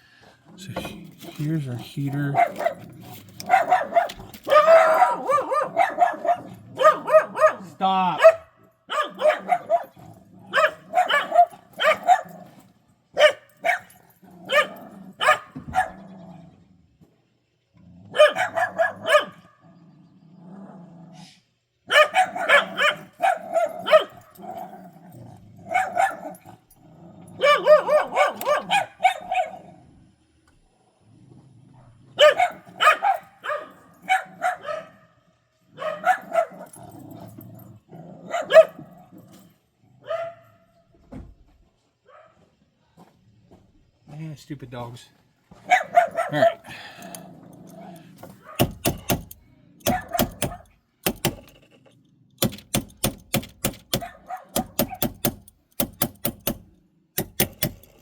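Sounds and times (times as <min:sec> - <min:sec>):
dogs barking: 0:01.1 - 0:16.3, 0:18.1 - 0:19.6, 0:21.8 - 0:29.8, 0:32.1 - 0:37.4, 0:38.2 - 0:39.3, 0:40.0 - 0:40.7, 0:42.1 - 0:42.5, 0:45.6 - 0:50.8, 0:52.4 - 0:55.4.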